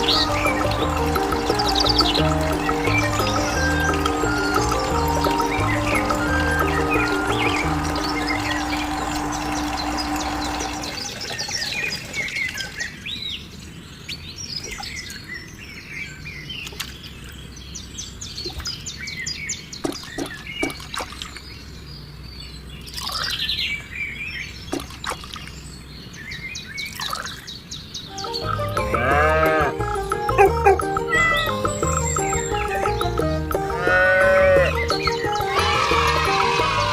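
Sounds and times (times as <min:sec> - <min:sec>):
music: 0:00.0 - 0:10.9, 0:28.1 - 0:36.9
birds chirping and twittering: 0:00.0 - 0:36.9.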